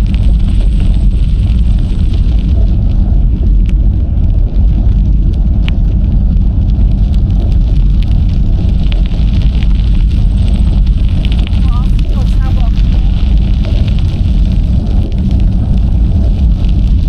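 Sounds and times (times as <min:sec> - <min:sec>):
bicycle tyres rolling on trail: 0:00.0 - 0:17.0
wind buffeting microphone: 0:00.0 - 0:17.0.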